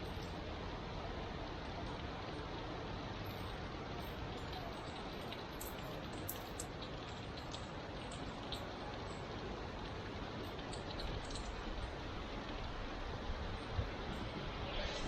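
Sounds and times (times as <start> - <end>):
steady rain falling: 0.0 - 15.0
raindrops tapping a surface: 1.6 - 14.2.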